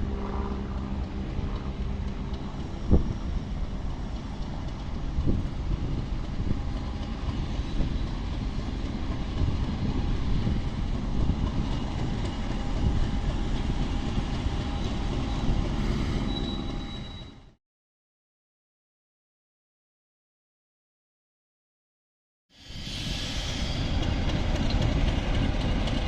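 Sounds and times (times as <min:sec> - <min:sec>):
train wheels rumbling on rail: 0:00.0 - 0:17.6, 0:22.6 - 0:26.0
faint high wheel squeal: 0:07.2 - 0:08.3, 0:14.5 - 0:17.6.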